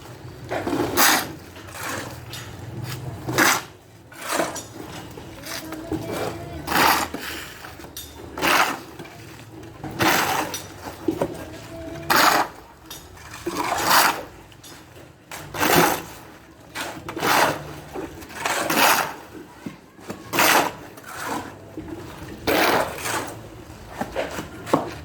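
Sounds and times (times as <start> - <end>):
hard objects clinking: 7.7 - 9.0.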